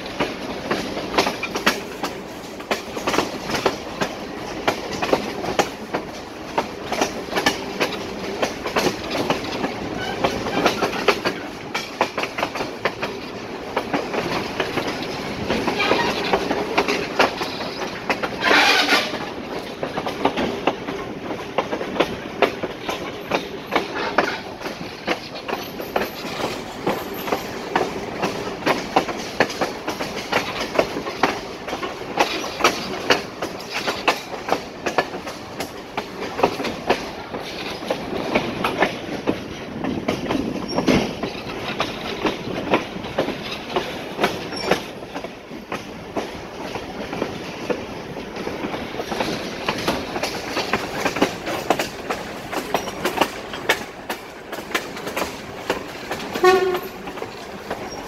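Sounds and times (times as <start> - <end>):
train rumbling: 0.0 - 58.0
wheels clacking over rail joints: 0.0 - 58.0.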